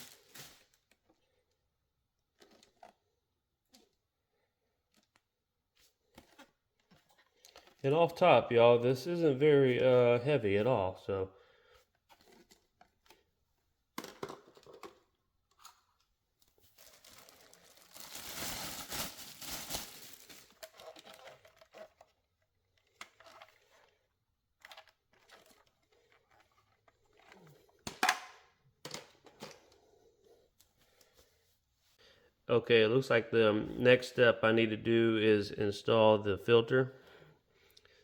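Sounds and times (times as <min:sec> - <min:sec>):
plastic packaging crinkling: 0:00.0 - 0:01.0, 0:16.5 - 0:21.9
plastic vacuum parts handled: 0:11.8 - 0:13.3, 0:14.0 - 0:22.2, 0:26.5 - 0:29.8.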